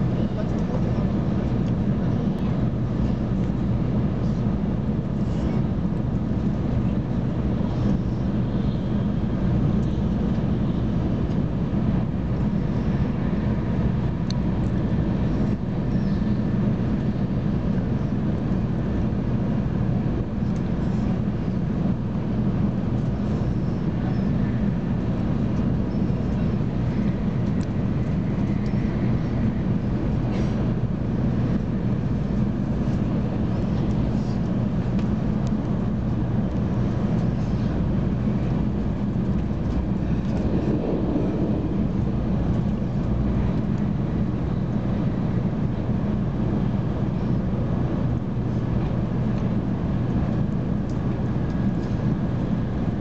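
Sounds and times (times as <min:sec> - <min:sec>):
train low rumble: 0:00.0 - 0:53.0.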